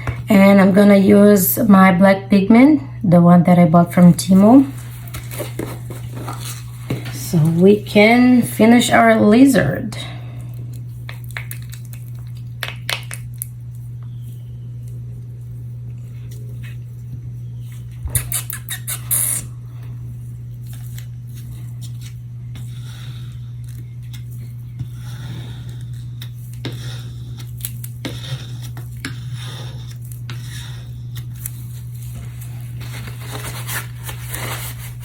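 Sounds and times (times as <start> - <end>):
steady low hum: 0.0 - 35.0
plastic cups clicking and scraping: 10.6 - 14.5.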